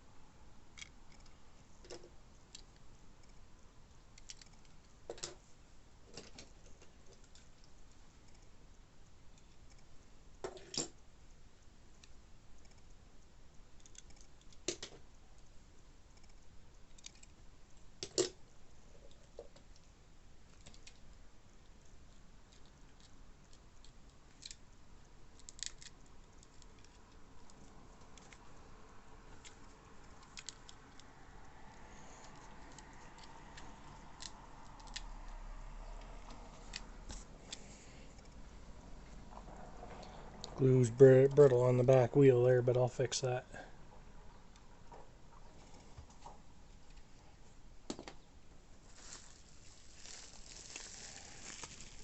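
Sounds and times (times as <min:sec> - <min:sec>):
toy cars and packaging handled: 0:48.8 - 0:52.0.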